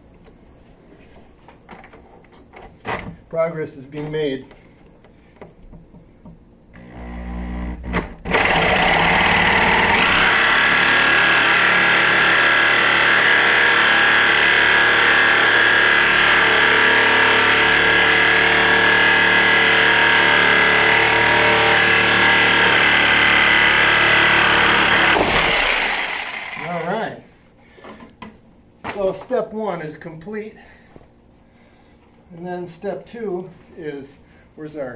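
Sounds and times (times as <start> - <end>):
electric power tool whining: 6.7 - 27.0.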